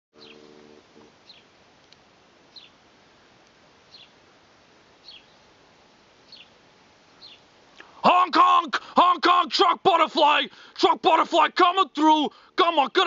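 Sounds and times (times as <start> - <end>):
bird chirping: 0.2 - 0.5, 1.2 - 1.5, 2.5 - 2.8, 3.9 - 4.2, 5.0 - 5.6, 6.2 - 8.0
faint outdoor hiss: 0.2 - 13.0.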